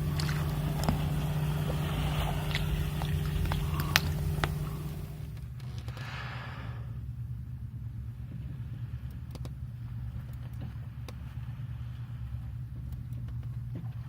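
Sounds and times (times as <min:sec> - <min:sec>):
faint clicks: 0:00.0 - 0:05.4
low mechanical hum: 0:00.0 - 0:14.0.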